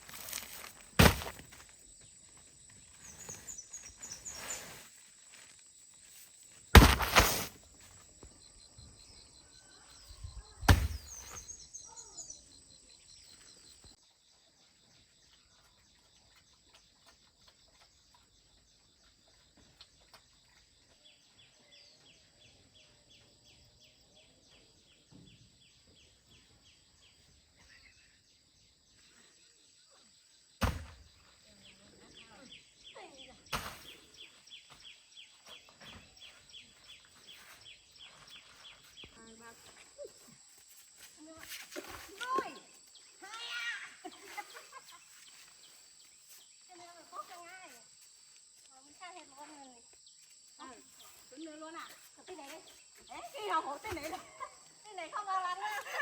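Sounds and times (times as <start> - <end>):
shuffling and scraping: 0.0 - 8.2, 35.5 - 43.0
heavy thuds: 1.0 - 1.6, 6.7 - 7.6.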